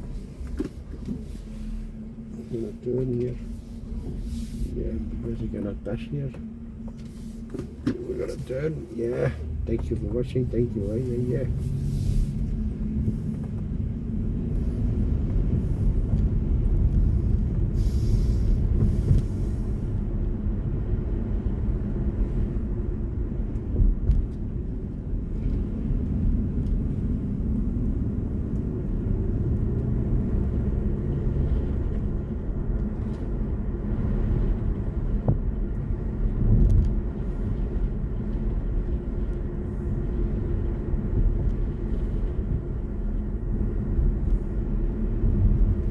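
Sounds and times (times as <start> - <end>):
road and tyre rumble: 0.0 - 45.9.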